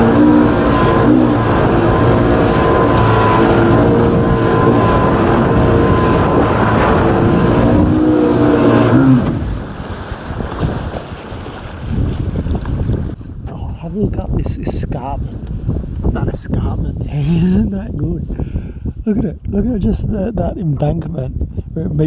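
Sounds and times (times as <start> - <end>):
high steady whine: 0.0 - 9.9
boat engine running: 0.0 - 15.8.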